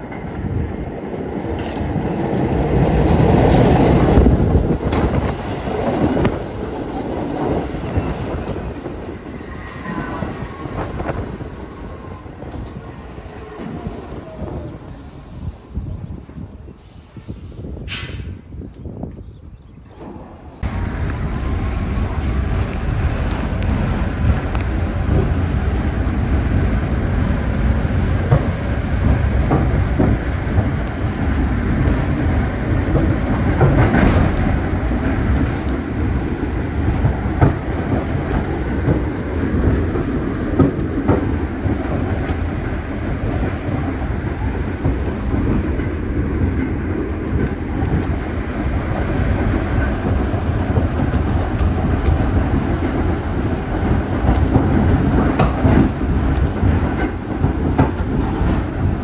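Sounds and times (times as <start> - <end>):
train rumbling on track: 0.0 - 59.0
thin high whine: 20.6 - 59.0.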